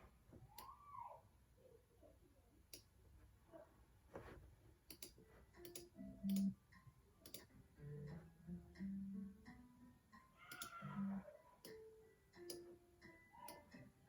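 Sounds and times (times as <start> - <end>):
computer mouse clicks: 4.9 - 6.5, 7.2 - 7.5, 10.4 - 10.9.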